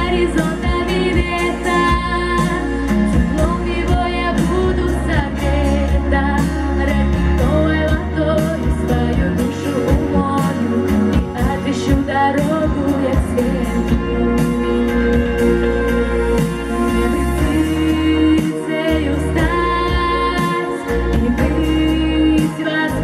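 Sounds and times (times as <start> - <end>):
instrumental backing with beat: 0.0 - 23.0
woman singing pop song: 0.0 - 23.0.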